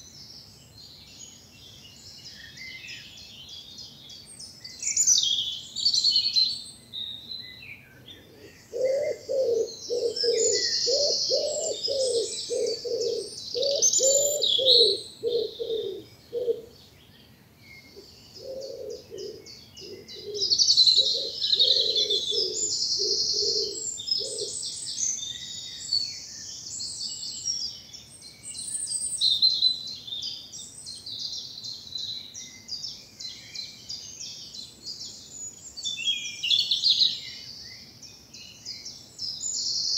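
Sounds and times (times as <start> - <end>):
songbirds chirping and trilling: 0.0 - 39.9
pigeon cooing: 8.1 - 16.7, 18.4 - 24.5.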